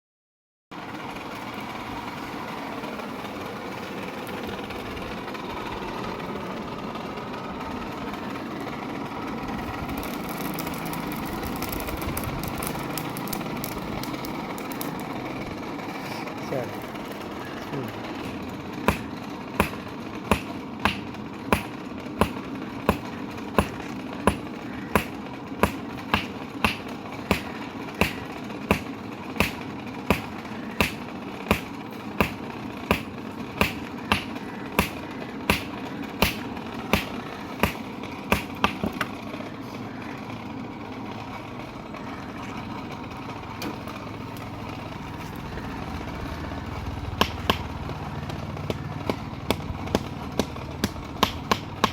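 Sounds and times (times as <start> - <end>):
hammer striking metal on anvil: 19.6 - 23.0, 23.6 - 38.9.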